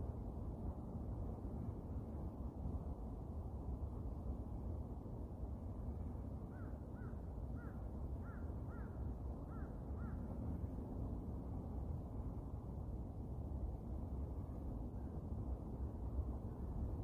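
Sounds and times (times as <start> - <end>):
low rushing background noise: 0.0 - 17.0.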